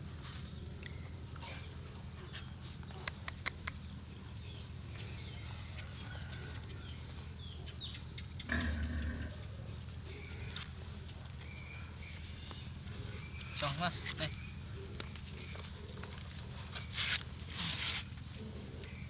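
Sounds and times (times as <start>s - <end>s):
animal clicks: 2.9s - 4.0s
low-pitched animal call: 8.4s - 9.5s.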